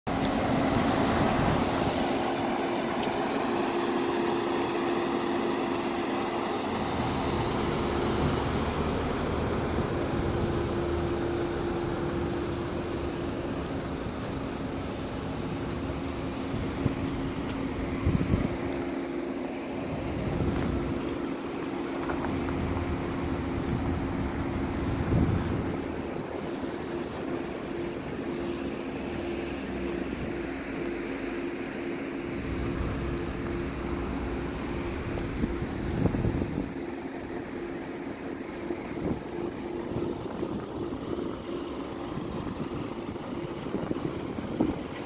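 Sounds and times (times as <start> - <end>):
engine idling: 0.1 - 45.0
wind on microphone: 24.7 - 26.0, 34.9 - 36.8.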